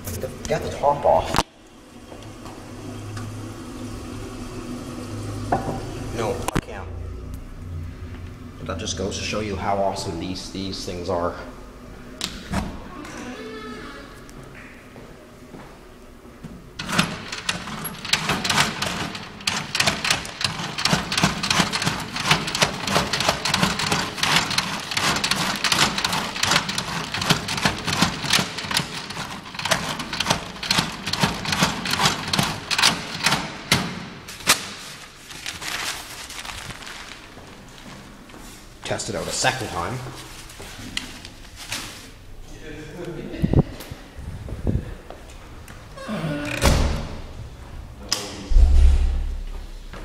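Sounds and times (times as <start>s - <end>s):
toilet flushing: 2.3s - 6.4s.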